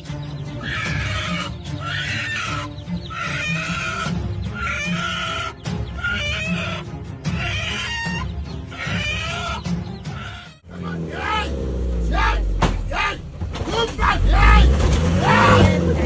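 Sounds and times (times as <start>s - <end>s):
steady low bass: 10.7s - 16.0s.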